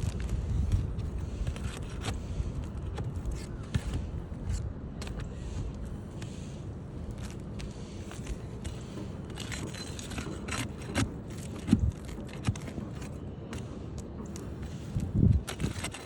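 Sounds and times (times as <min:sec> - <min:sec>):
scraping on roof shingles: 0:00.0 - 0:16.0.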